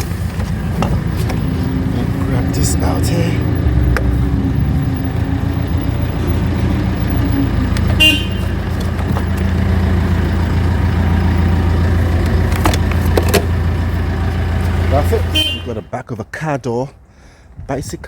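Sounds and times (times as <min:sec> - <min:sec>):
vehicle engine running: 0:00.0 - 0:15.9.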